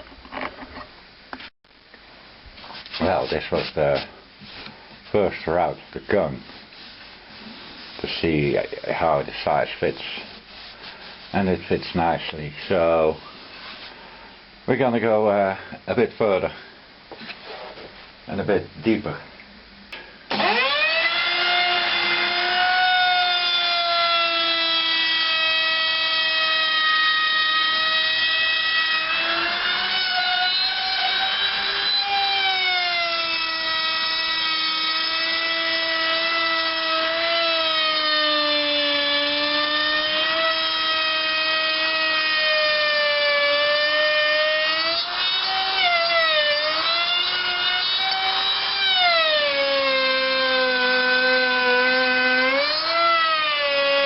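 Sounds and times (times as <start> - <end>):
electric router whining: 20.3 - 54.0.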